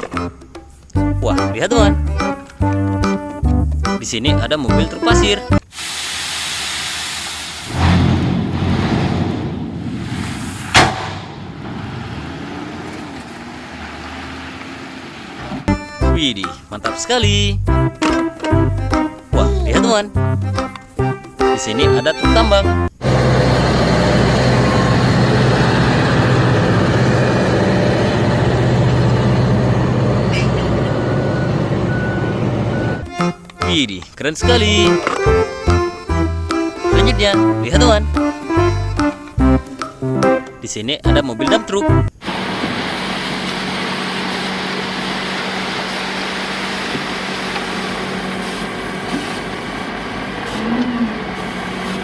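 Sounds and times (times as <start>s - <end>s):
diesel truck engine humming: 10.6s - 40.7s, 41.3s - 52.0s.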